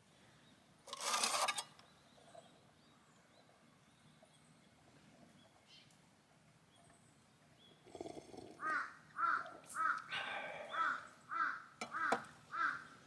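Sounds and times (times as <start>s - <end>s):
crow cawing: 8.6s - 13.0s.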